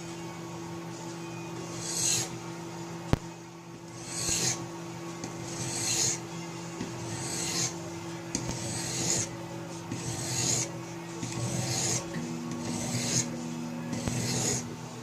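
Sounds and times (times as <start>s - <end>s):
sharpening stone rasping on blade: 1.7s - 2.4s, 3.9s - 4.6s, 5.4s - 6.2s, 6.9s - 7.8s, 8.4s - 14.8s.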